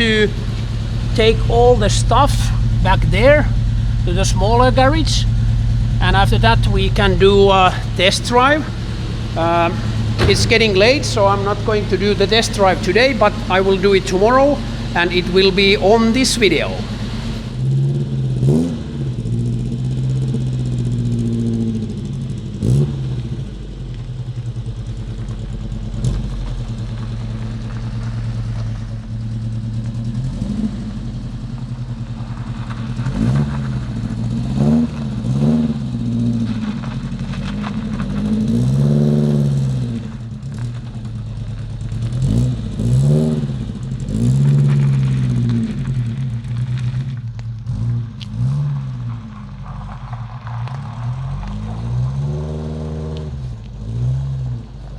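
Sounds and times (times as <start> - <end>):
car engine idling and revving: 0.0 - 54.9
sharp knocks: 6.4 - 15.0.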